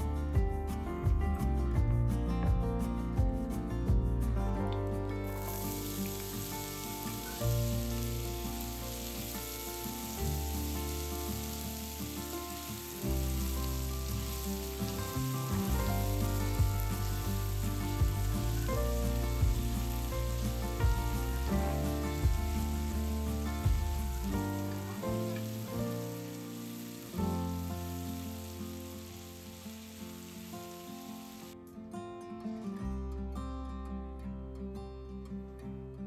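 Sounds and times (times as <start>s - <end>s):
background music with bass line: 0.0s - 11.9s, 12.8s - 25.8s
food sizzling in a frying pan: 5.2s - 31.6s.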